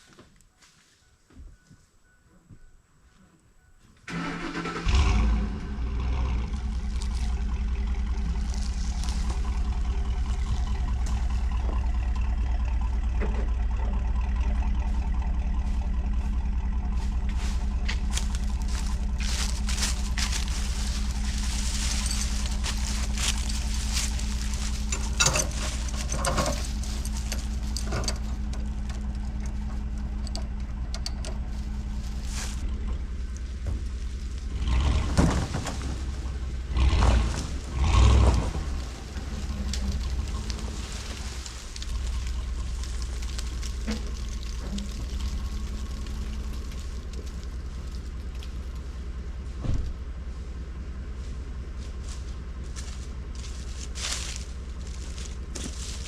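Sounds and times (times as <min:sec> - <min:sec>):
engine starting and idling: 0:04.0 - 0:49.5
clicks and knocks: 0:22.1 - 0:31.8.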